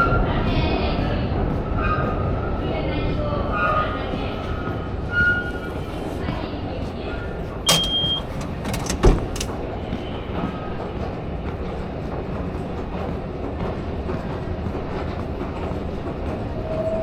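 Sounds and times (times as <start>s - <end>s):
subway train rumbling on tracks: 0.0s - 17.0s
sharp clicks and knocks: 7.7s - 9.6s.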